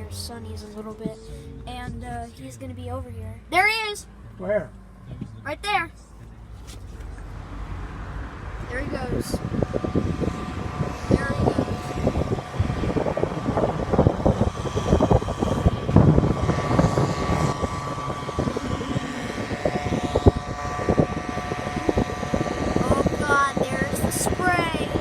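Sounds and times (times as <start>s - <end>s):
steady high whine: 3.5s - 25.0s
fogging truck engine passing: 6.2s - 25.0s.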